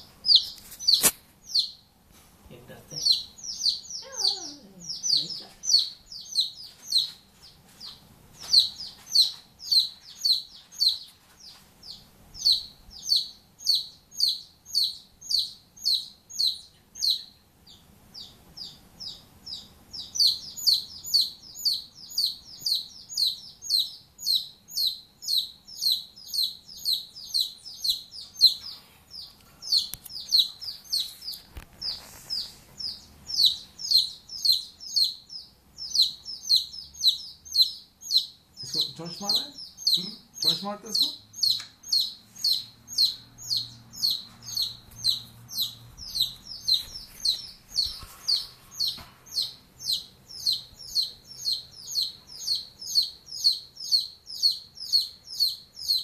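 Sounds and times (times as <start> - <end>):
bird chirping high notes: 32.8 - 56.0.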